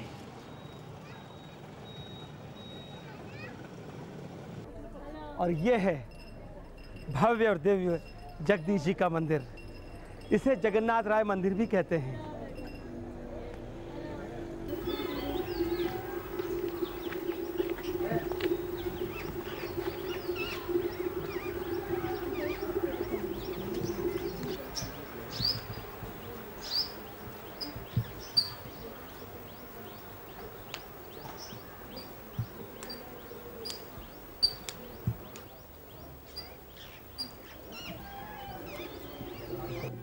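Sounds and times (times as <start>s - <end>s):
steady low hum: 12.4s - 35.4s
birds chirping: 14.7s - 40.0s.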